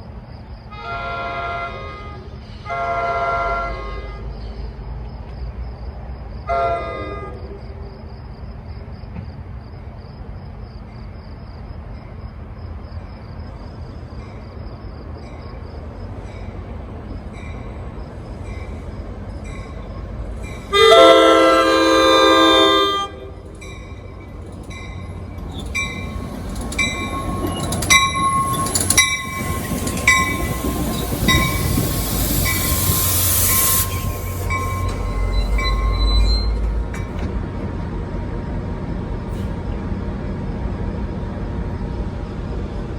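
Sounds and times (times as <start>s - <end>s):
train rumbling: 0.0s - 42.9s
train horn blast: 0.7s - 4.3s, 20.7s - 23.6s
train wheels clicking over rail joints: 13.4s - 40.1s.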